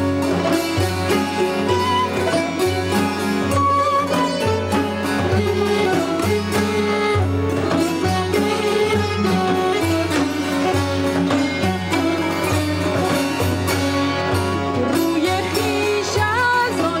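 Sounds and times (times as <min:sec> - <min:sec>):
plucked and bowed strings playing: 0:00.0 - 0:17.0.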